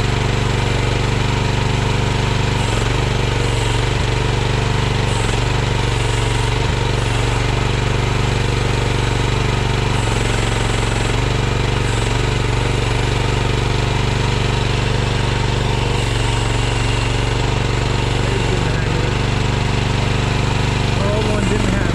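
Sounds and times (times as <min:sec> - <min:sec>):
small engine running: 0:00.0 - 0:21.9.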